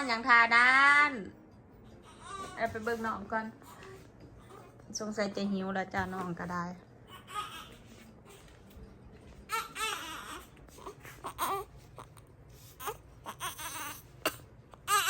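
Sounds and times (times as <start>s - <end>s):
infant crying: 2.0s - 2.6s, 7.1s - 8.4s, 9.5s - 15.0s.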